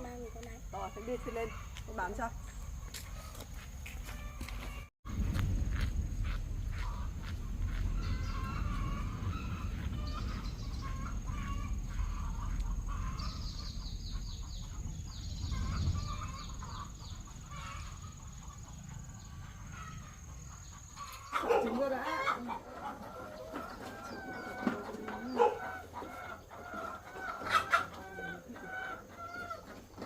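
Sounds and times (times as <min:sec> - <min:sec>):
low rumble: 0:05.1 - 0:20.3
hens clucking: 0:06.7 - 0:30.0.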